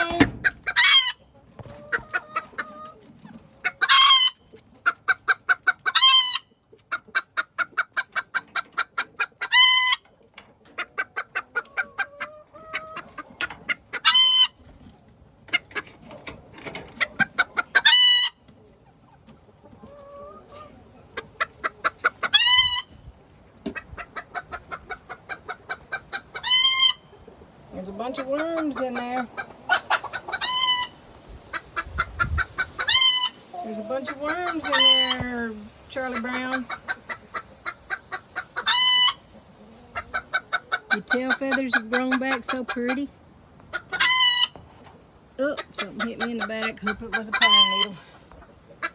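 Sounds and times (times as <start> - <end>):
chickens clucking: 0.0 - 48.9
shrill chicken squawk: 0.6 - 1.2, 5.8 - 6.5, 9.4 - 10.0, 13.9 - 14.6, 22.1 - 23.0, 24.4 - 27.1, 29.4 - 33.4, 36.7 - 39.3, 43.7 - 44.6.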